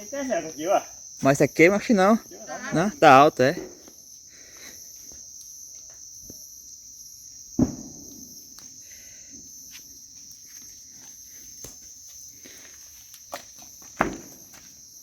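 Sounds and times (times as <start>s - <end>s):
crickets chirping: 0.0s - 15.0s
sharp thump: 7.6s - 8.2s, 14.0s - 14.4s.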